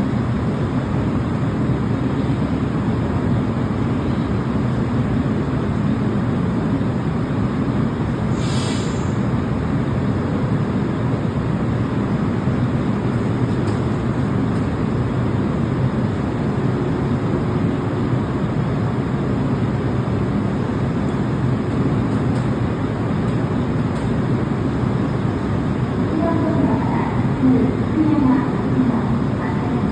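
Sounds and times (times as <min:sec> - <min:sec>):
electric train rumbling: 0:00.0 - 0:29.9.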